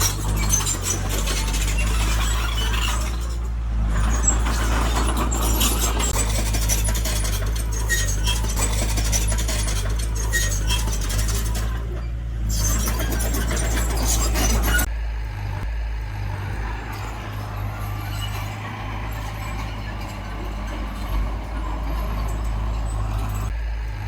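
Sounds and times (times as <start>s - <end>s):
diesel engine running: 0.0s - 24.0s
light clinks and rattles: 16.9s - 23.6s.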